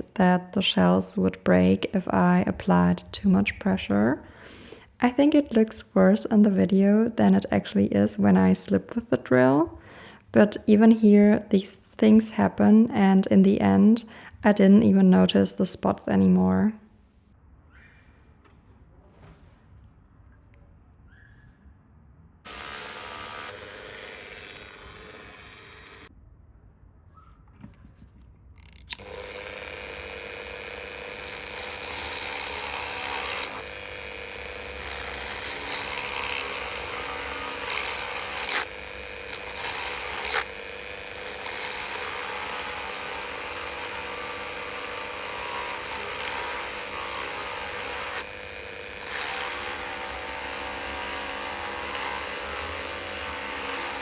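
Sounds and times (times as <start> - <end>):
rotary tool drilling shell: 22.5 - 26.1, 28.6 - 54.0.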